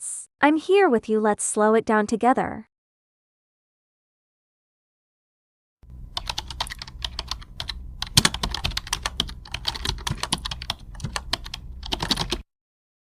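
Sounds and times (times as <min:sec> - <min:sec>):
low steady hum: 0:05.9 - 0:12.4
computer keyboard typing: 0:06.1 - 0:12.4.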